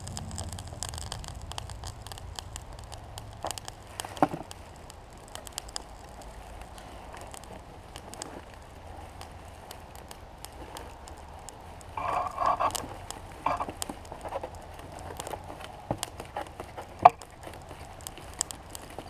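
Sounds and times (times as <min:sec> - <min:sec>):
rasping burst: 0:00.0 - 0:08.0
crackles and ticks: 0:00.0 - 0:19.0
gas burner hissing: 0:00.0 - 0:19.0.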